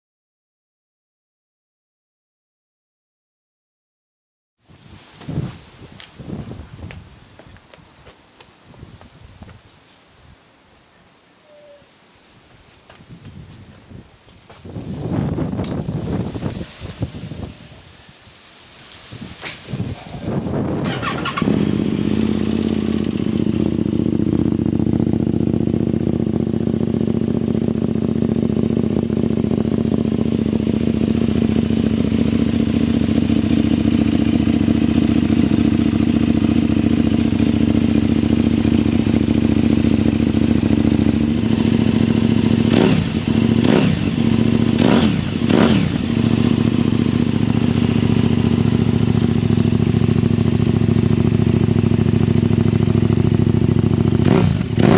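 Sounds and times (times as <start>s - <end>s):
motorcycle throttle blips: 14.6s - 18.2s, 18.8s - 54.9s
motorcycle engine starting and idling: 14.7s - 18.2s, 18.8s - 54.9s.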